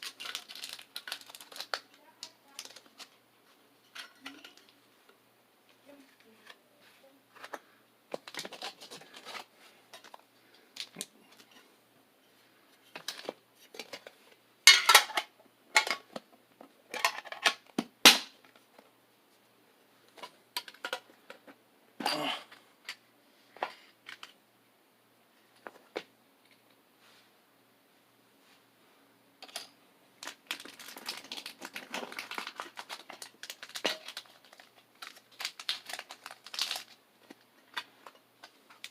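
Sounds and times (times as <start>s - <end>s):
trading cards and packaging handled: 0.0s - 4.8s, 5.7s - 11.7s, 12.8s - 14.4s, 29.4s - 38.9s.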